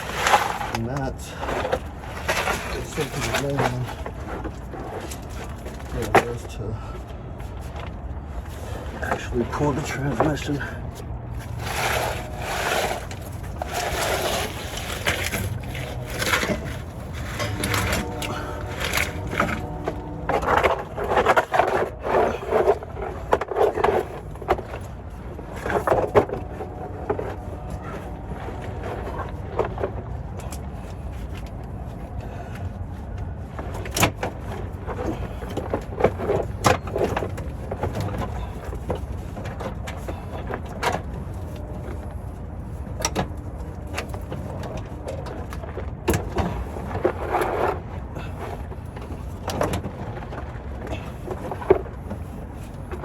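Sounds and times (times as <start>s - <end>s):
hand tools clanking on metal: 0.0s - 7.0s, 11.4s - 30.8s.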